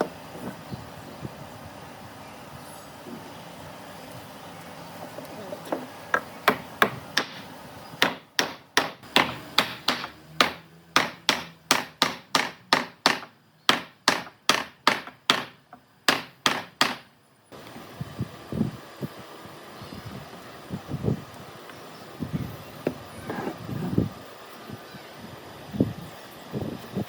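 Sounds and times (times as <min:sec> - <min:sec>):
hammer blows: 0:06.4 - 0:17.1.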